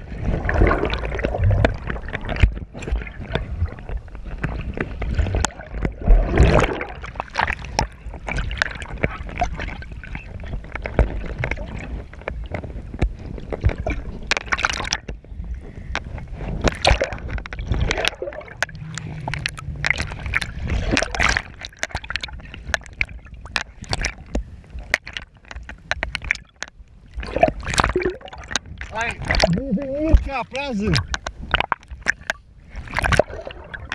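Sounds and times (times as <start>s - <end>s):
water splashing and sloshing: 0.0s - 33.9s.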